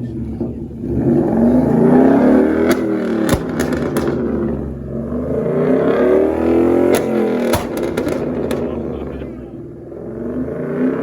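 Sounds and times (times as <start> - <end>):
car engine revving: 0.0 - 11.0
sharp cracks: 2.6 - 4.5, 6.9 - 8.8.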